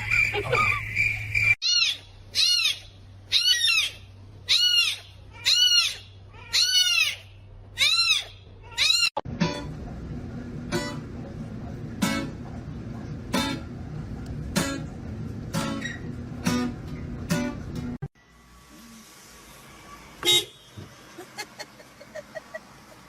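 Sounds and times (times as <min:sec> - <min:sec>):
small animal crying: 0:01.6 - 0:09.2.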